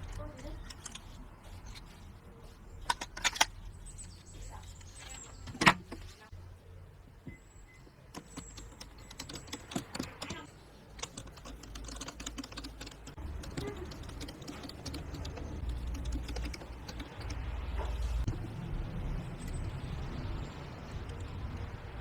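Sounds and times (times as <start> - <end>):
small hard parts clicking: 0.0 - 6.2, 8.1 - 18.2.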